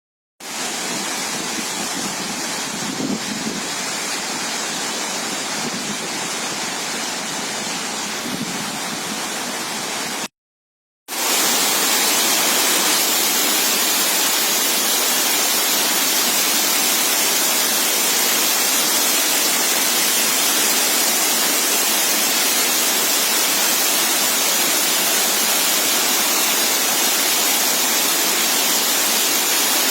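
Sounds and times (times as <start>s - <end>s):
waterfall rushing: 11.1s - 29.9s.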